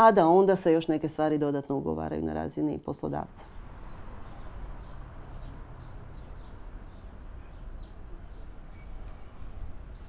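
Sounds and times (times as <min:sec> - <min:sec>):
birds chirping: 0:03.4 - 0:10.0.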